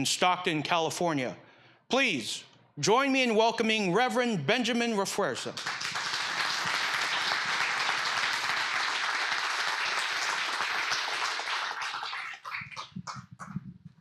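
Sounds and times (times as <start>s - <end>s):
congregation clapping: 5.4s - 13.8s.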